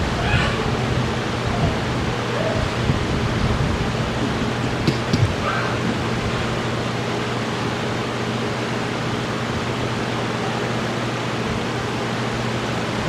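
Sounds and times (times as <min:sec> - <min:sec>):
low electrical hum: 0:00.0 - 0:13.0
small knocks: 0:04.8 - 0:05.4.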